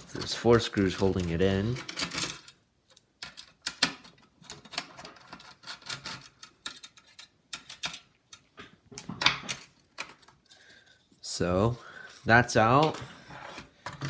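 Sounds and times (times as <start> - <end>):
screwdriver clicking and scraping: 0.0 - 8.5.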